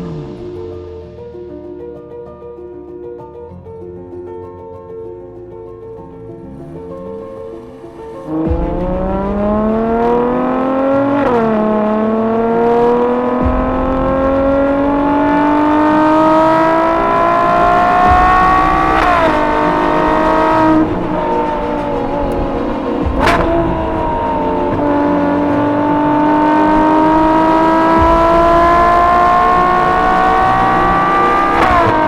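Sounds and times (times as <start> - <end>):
car engine accelerating with upshifts: 6.4 - 32.0.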